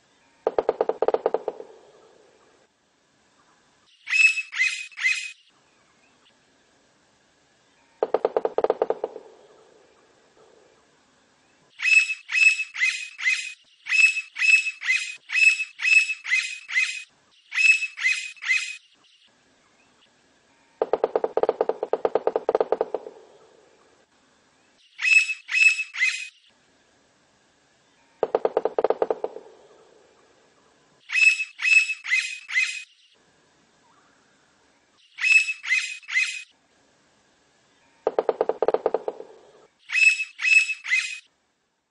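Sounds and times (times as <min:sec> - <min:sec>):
woodpecker drumming: 0:00.5 - 0:02.5, 0:08.0 - 0:10.8, 0:20.8 - 0:24.0, 0:28.2 - 0:30.3, 0:38.1 - 0:41.2
woodpecker calling: 0:00.5 - 0:02.6, 0:04.0 - 0:05.4, 0:08.0 - 0:10.8, 0:11.8 - 0:18.8, 0:20.8 - 0:24.0, 0:25.0 - 0:26.4, 0:28.2 - 0:30.4, 0:31.1 - 0:33.0, 0:35.1 - 0:36.5, 0:38.1 - 0:41.3.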